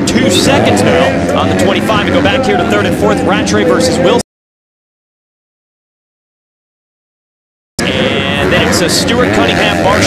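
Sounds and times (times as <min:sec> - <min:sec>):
race noise: 0:00.0 - 0:04.2, 0:07.8 - 0:10.0
commentator speaking: 0:00.0 - 0:04.3, 0:07.8 - 0:10.0.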